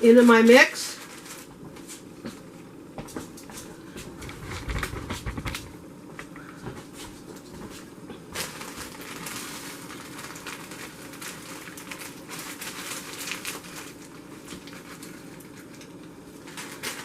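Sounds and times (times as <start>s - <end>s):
frozen berries crackling into a pan: 0.1s - 2.2s, 8.3s - 17.0s.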